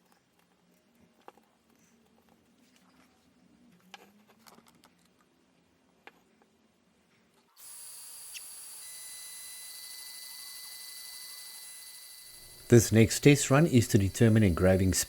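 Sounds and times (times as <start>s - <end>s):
laser engraver fan and motors: 7.5s - 15.0s.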